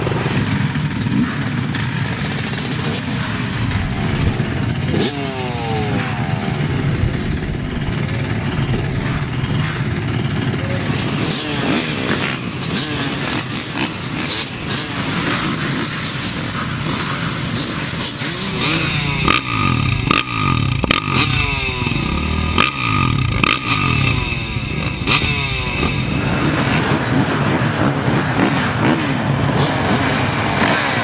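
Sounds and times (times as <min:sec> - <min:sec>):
motocross bike engines revving: 0:00.0 - 0:31.0
sharp clicks and knocks: 0:06.0 - 0:11.4.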